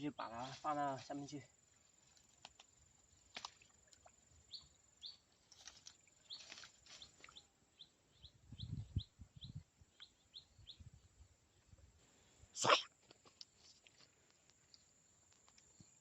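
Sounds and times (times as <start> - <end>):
small bird chirping: 2.3 - 11.2.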